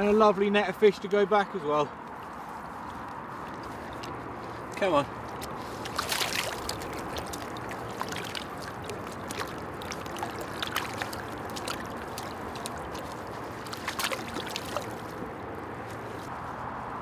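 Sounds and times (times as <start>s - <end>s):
water splashing: 2.9s - 16.4s.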